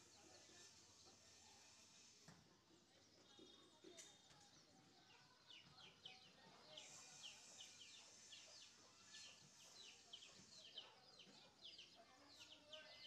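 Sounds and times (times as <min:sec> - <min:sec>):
small birds chirping rapidly: 0:02.8 - 0:13.0.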